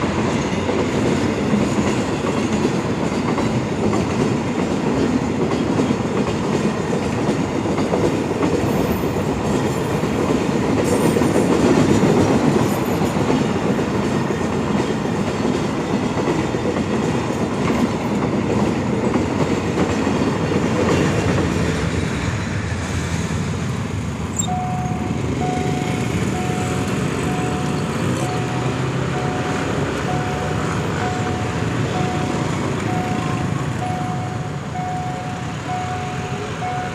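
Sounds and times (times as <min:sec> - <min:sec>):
train wheel clatter: 0:00.0 - 0:22.2
freight train rumbling past: 0:00.0 - 0:36.9
level crossing signal beeping: 0:24.4 - 0:36.9.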